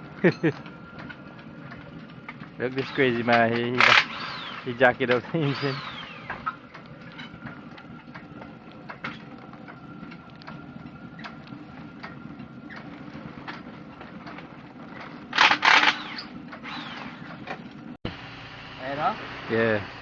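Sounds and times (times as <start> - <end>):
harsh rattling bursts: 2.0 - 7.9, 14.9 - 17.5.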